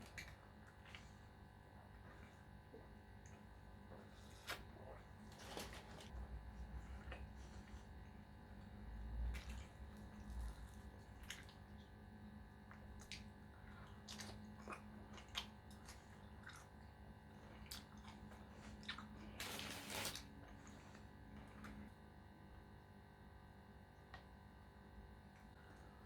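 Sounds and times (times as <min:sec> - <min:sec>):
mouth clicks and chewing: 0:12.7 - 0:16.9.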